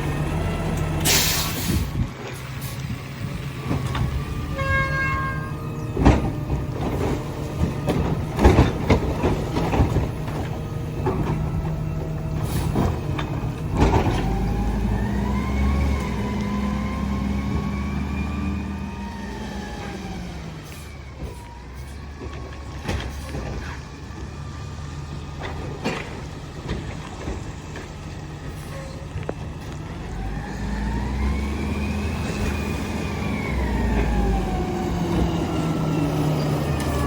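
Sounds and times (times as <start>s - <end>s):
truck engine revving with whine: 0.0s - 21.1s, 29.2s - 37.0s
trash banging into hopper: 5.3s - 18.0s.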